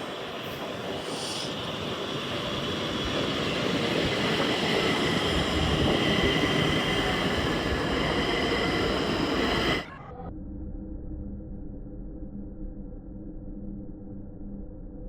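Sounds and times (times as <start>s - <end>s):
train wheels rumbling on rails: 0.0s - 9.9s
high-pitched whine: 0.0s - 15.0s.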